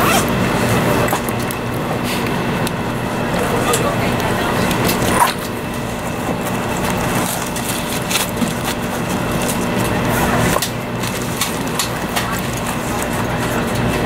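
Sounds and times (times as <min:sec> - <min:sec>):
train running rumble and hum: 0:00.0 - 0:14.0.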